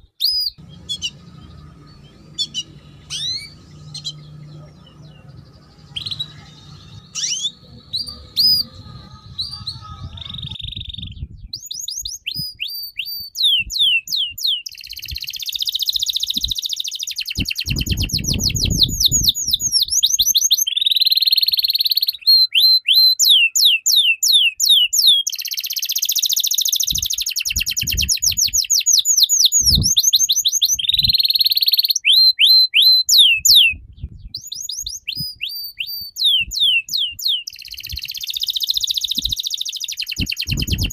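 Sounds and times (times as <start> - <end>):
songbird whistled notes: 0.2 - 40.9
bird buzzy trills: 0.5 - 13.2, 34.4 - 40.9.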